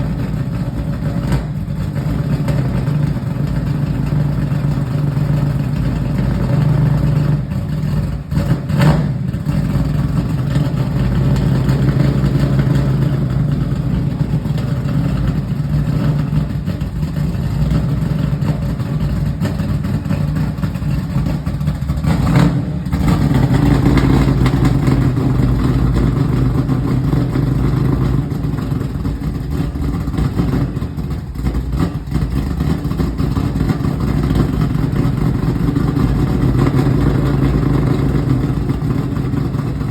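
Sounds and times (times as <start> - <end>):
car engine droning: 0.0 - 39.9.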